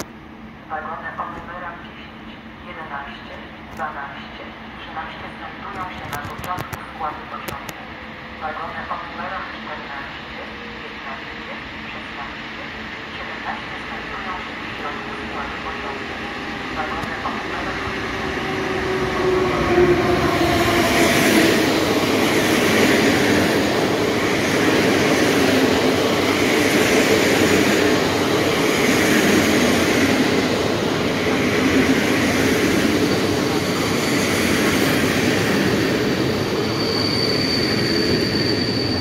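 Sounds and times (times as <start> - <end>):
train wheels rumbling on rail: 12.2 - 39.0
thin high squeal: 36.6 - 39.0.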